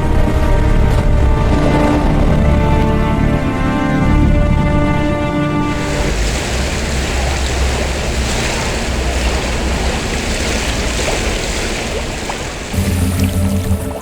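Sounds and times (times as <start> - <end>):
rushing water: 5.6 - 14.0.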